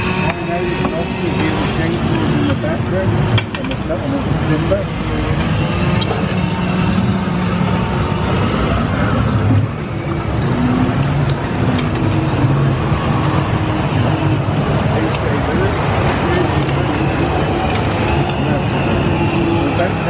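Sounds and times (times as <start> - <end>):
raft ride water rushing: 5.6 - 20.0.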